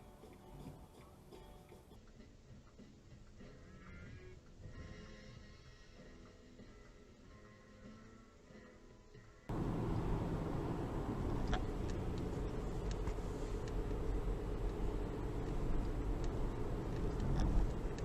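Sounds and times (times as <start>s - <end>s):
vehicle engine and road noise: 9.5s - 18.0s.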